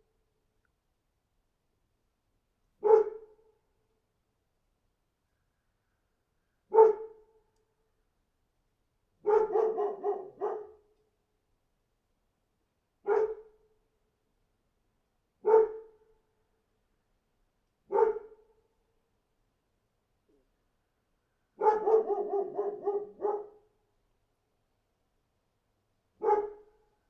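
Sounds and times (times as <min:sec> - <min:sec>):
dog barking: 0:02.8 - 0:03.4, 0:06.7 - 0:07.2, 0:09.2 - 0:10.9, 0:13.1 - 0:13.5, 0:15.4 - 0:16.0, 0:17.9 - 0:18.4, 0:21.6 - 0:23.7, 0:26.2 - 0:26.8.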